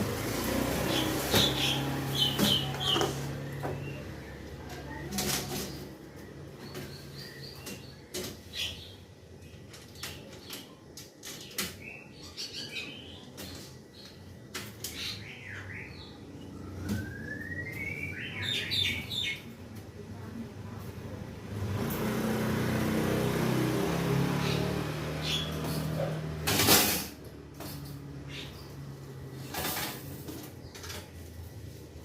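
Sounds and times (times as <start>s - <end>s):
small birds chirping: 0.0s - 21.1s, 23.9s - 26.4s, 27.8s - 29.5s.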